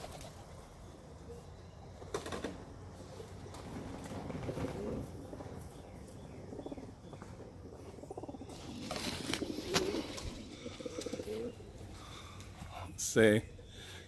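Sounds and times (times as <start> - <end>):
wings flapping: 0.0 - 0.6, 3.5 - 5.1, 8.6 - 11.2
pigeons cooing: 0.0 - 14.0.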